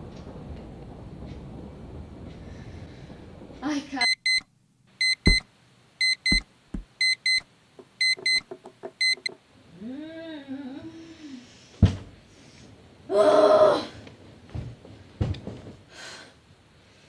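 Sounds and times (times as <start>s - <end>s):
alarm clock beeping: 4.0s - 4.4s, 5.0s - 5.4s, 6.0s - 6.4s, 7.0s - 7.4s, 8.0s - 8.4s, 9.0s - 9.3s
thump: 11.8s - 12.1s.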